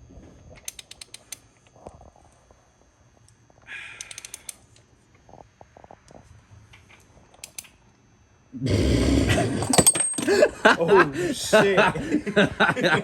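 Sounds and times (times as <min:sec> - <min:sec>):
ratchet wrench clicking: 0:00.6 - 0:01.4, 0:04.0 - 0:04.7, 0:07.4 - 0:07.7.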